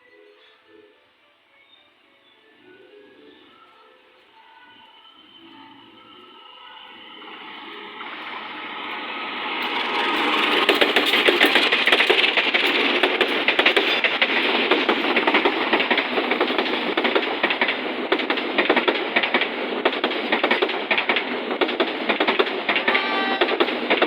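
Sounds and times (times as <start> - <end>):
train wheels clattering on rails: 6.2 - 24.0.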